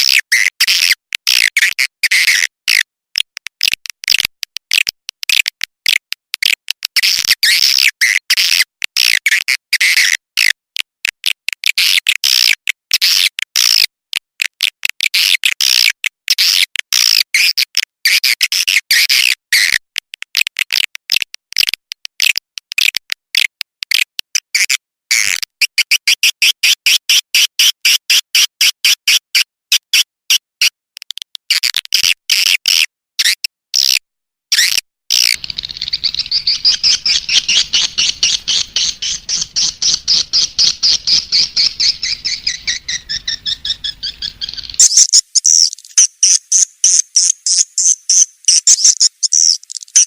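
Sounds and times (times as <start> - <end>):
repeated fast chirps: 34.5 - 50.0
swiftlets twittering: 35.4 - 50.0.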